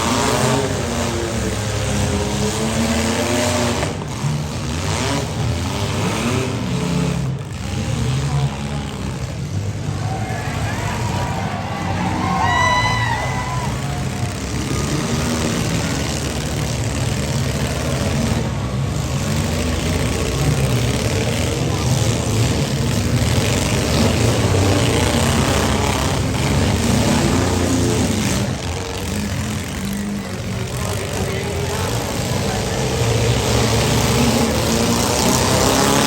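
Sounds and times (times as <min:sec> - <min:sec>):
car engines revving: 0:00.0 - 0:36.0.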